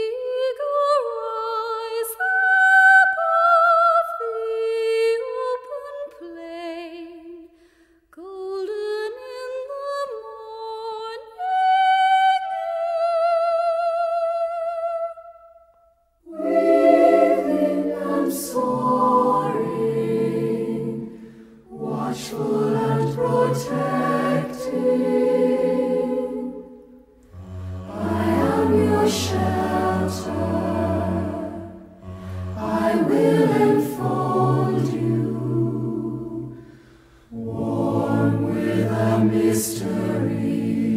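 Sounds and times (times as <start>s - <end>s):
choir singing in parts: 16.2s - 40.9s
person singing with vibrato: 16.3s - 36.6s, 37.3s - 40.5s
low held note: 27.2s - 29.8s, 31.7s - 33.2s.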